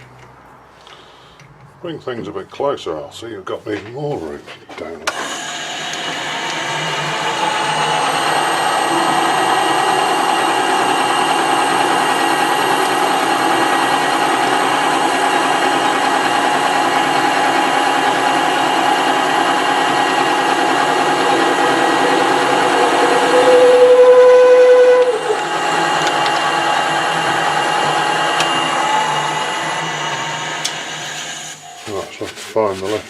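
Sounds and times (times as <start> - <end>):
lathe humming and whining: 5.1 - 31.9
loud high squeal: 19.9 - 27.9.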